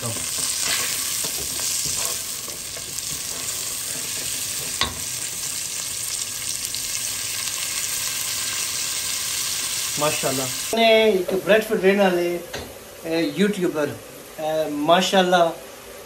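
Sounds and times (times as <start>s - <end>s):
wooden spoon stirring and scraping: 0.0s - 4.9s
onion sizzling in hot oil: 0.0s - 11.3s.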